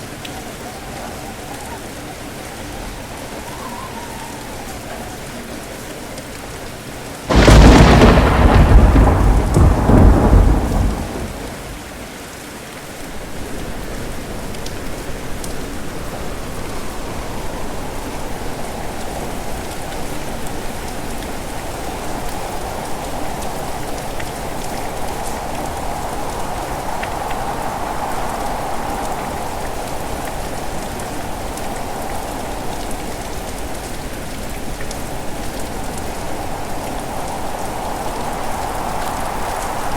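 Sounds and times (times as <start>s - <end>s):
heavy rain: 0.0s - 39.9s
thunderclap rumbling: 7.3s - 12.2s, 15.9s - 33.7s, 35.7s - 39.9s.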